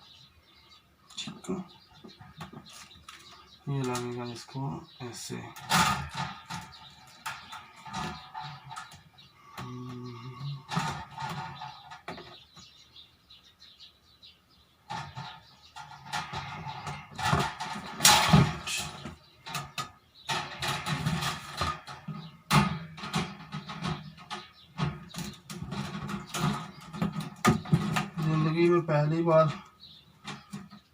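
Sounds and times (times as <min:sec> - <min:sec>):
plastic parts clicking and rattling: 0:14.9 - 0:28.3.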